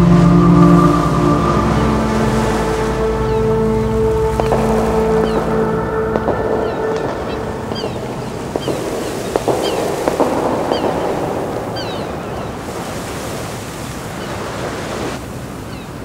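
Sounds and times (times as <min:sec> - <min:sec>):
sea waves washing on shore: 0:00.0 - 0:16.0
wind: 0:00.0 - 0:16.0
short falling bird calls: 0:03.2 - 0:13.2.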